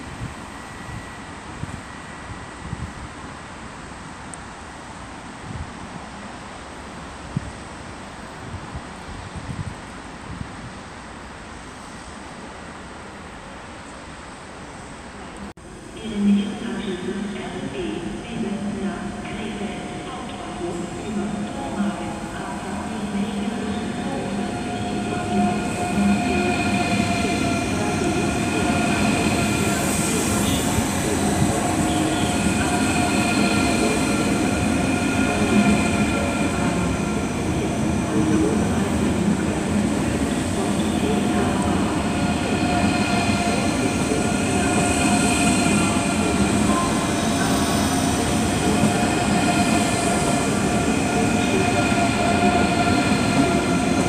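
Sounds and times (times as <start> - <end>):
train wheels rumbling: 20.4 - 54.0.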